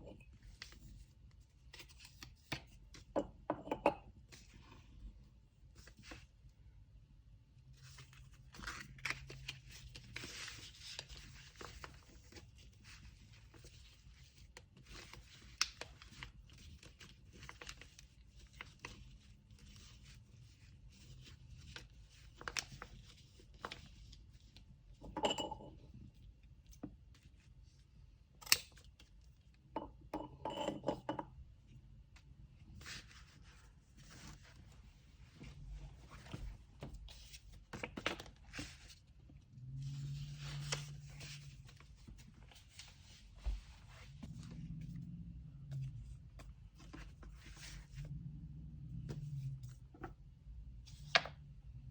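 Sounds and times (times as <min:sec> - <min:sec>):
paper rustling and crinkling: 0:07.8 - 0:24.7, 0:32.7 - 0:39.2, 0:45.9 - 0:48.0.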